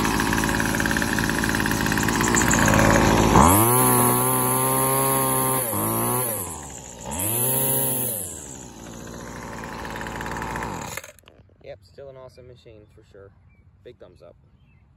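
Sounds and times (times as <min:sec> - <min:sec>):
string trimmer engine revving: 0:00.0 - 0:11.3.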